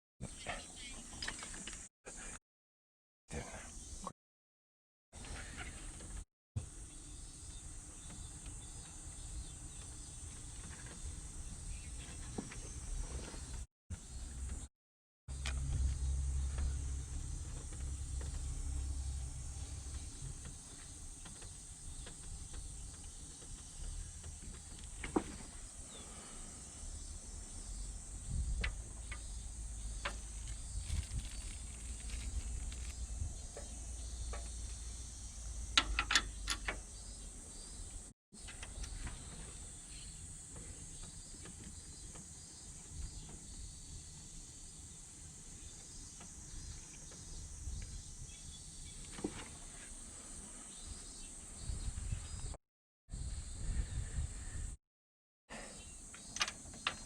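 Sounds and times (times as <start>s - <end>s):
sharp clicks and knocks: 35.8s - 36.9s.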